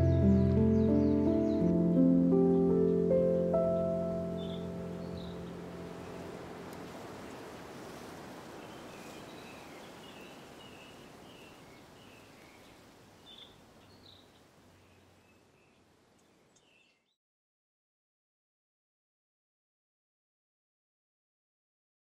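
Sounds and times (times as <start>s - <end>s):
steady outdoor hiss: 0.0s - 17.1s
birds chirping: 0.0s - 17.2s.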